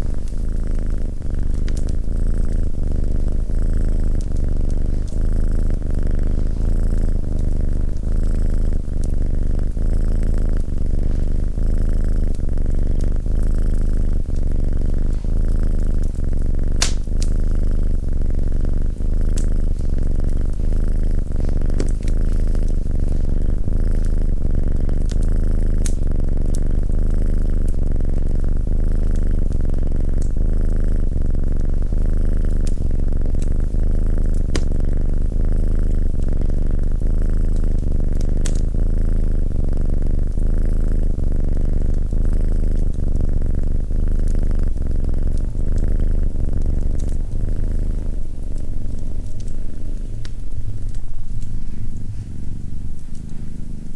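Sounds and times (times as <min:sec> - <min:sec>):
cat purring: 0:00.0 - 0:53.9
wood fire crackling: 0:14.2 - 0:26.9, 0:46.4 - 0:53.9.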